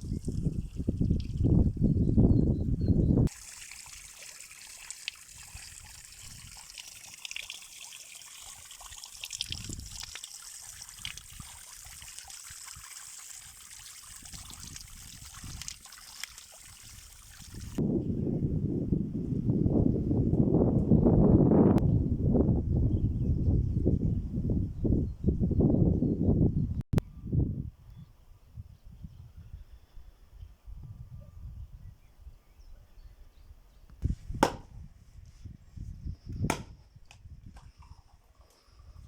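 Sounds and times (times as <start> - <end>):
water trickling: 3.3 - 17.8.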